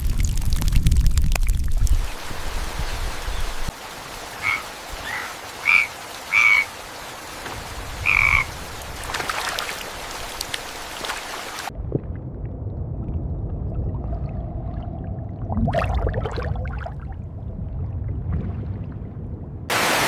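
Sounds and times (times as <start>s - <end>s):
rain hiss: 0.0s - 11.7s, 19.7s - 20.0s
frog calling: 4.4s - 6.8s, 8.0s - 8.6s.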